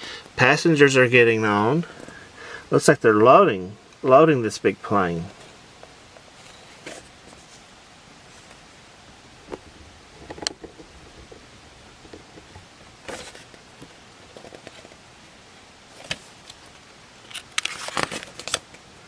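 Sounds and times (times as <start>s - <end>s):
faint steady hiss: 0.0s - 19.0s
paper pages turning: 13.1s - 15.0s, 15.9s - 18.8s.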